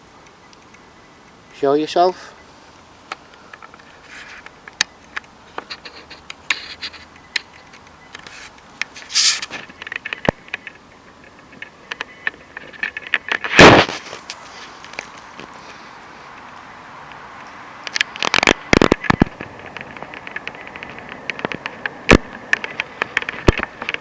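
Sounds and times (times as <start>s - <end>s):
small clicks and crackles: 0.0s - 24.0s
short hiss: 8.2s - 9.7s
sharp loud bang: 13.5s - 14.0s.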